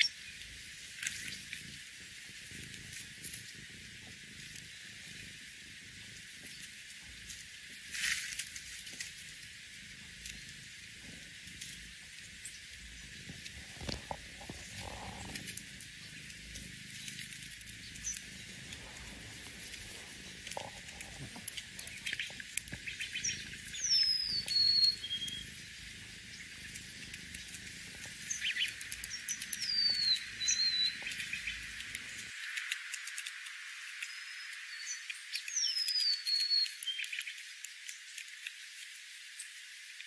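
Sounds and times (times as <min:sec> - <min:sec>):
small birds whistled calls: 0:00.0 - 0:00.4, 0:16.9 - 0:20.4, 0:21.0 - 0:32.6, 0:34.0 - 0:38.2.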